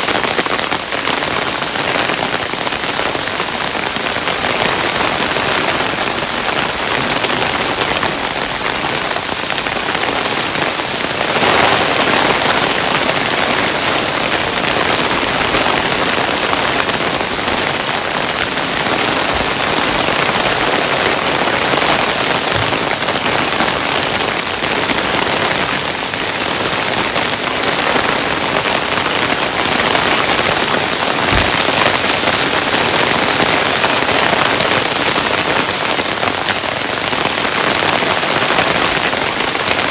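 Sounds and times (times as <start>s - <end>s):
hailstones pelting down: 0.1s - 39.9s
heavier hail thuds: 31.2s - 32.0s.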